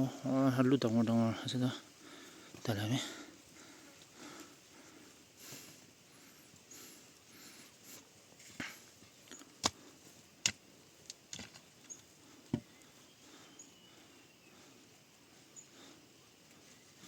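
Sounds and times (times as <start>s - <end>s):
faint high chirps: 11.8s - 17.0s.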